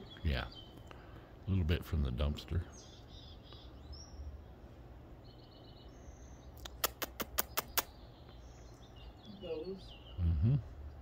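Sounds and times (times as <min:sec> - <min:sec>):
faint bird chirps: 0:02.4 - 0:11.0
sharp clicks: 0:06.6 - 0:07.9.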